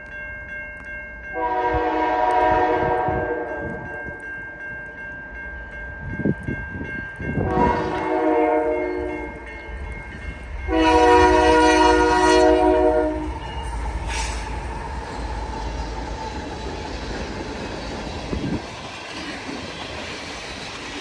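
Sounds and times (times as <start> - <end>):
train rumbling: 1.2 - 21.0
locomotive air horn blasts: 1.4 - 3.8, 7.4 - 9.4, 10.7 - 13.4.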